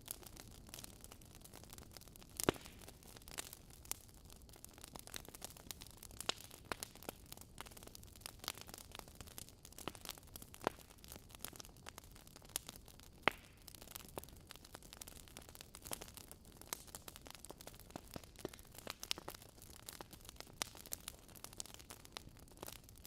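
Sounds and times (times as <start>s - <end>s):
low hiss of fire: 0.0s - 4.1s, 4.9s - 23.0s
logs crackling and popping in fire: 0.0s - 23.0s.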